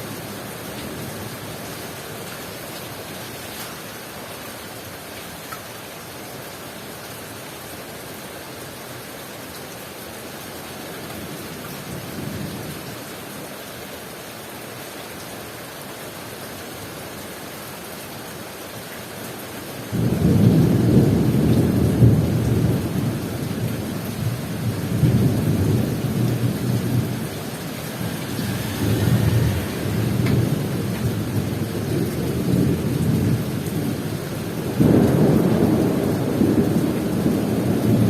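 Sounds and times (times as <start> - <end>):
heavy rain hissing: 19.2 - 38.0
thunder rumbling: 19.9 - 38.0.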